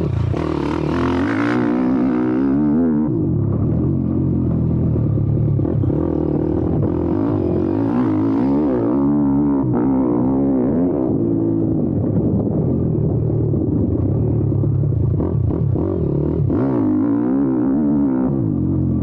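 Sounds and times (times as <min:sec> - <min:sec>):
pit bike engine revving: 0:00.0 - 0:11.4.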